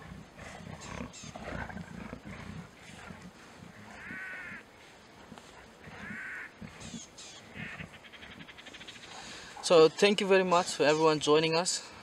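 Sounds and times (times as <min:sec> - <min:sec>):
faint low rumble: 0:00.0 - 0:09.6
bird cawing harshly: 0:06.1 - 0:06.5.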